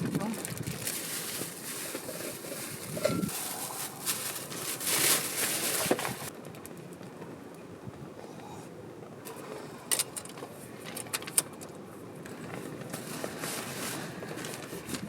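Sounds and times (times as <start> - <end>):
soft rustling: 0.4 - 6.3.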